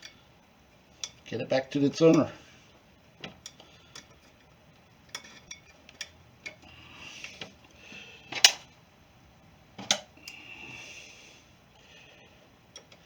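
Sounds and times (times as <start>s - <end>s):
metal clicks of small parts: 12.7s - 13.0s.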